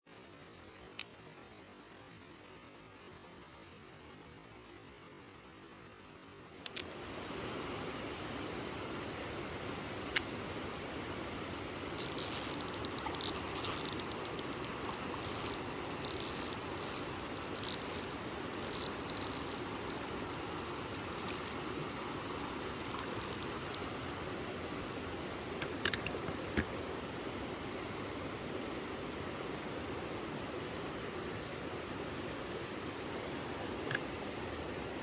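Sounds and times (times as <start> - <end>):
mountain stream running: 0.1 - 35.0
high-pitched ticking and rattling: 12.0 - 22.0.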